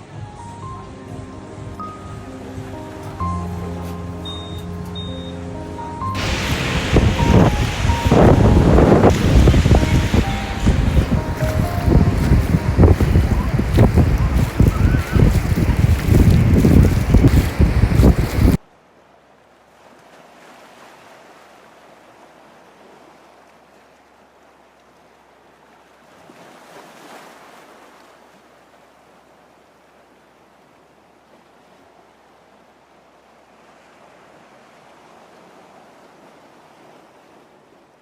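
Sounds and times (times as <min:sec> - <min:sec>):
faint ocean surf: 0:00.0 - 0:38.0
loud sound ending abruptly: 0:06.2 - 0:13.6.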